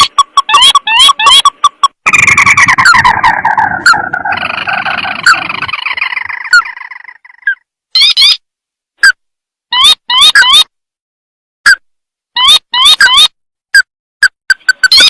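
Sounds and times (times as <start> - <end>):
crake calls: 0.0 - 8.4.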